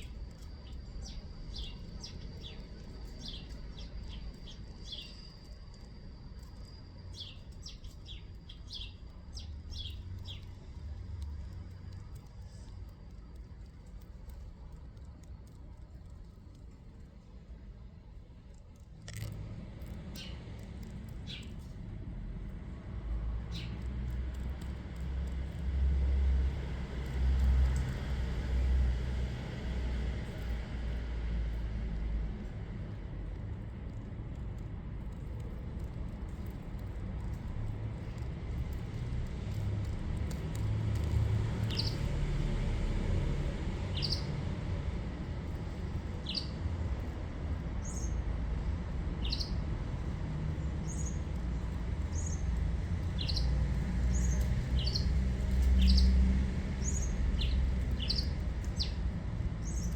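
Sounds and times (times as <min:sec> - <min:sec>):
small bird chirping: 0:00.0 - 0:10.6, 0:20.1 - 0:20.4, 0:23.5 - 0:23.9, 0:41.0 - 0:42.2, 0:43.9 - 0:44.4, 0:46.2 - 0:46.6, 0:47.8 - 0:48.2, 0:49.2 - 0:49.6, 0:50.8 - 0:59.9
high bird chirps: 0:53.2 - 0:53.5.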